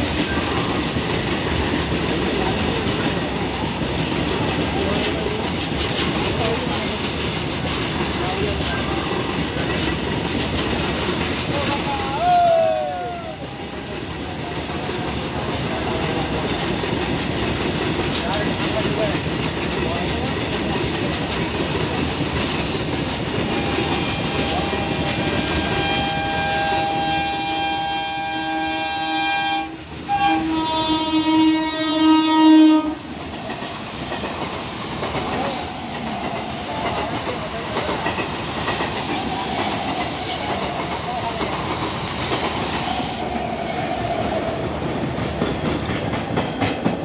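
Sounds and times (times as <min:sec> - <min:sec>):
wheels clacking over rail joints: 0:00.0 - 0:12.2, 0:13.5 - 0:27.4, 0:29.8 - 0:47.0
train horn: 0:23.4 - 0:33.1.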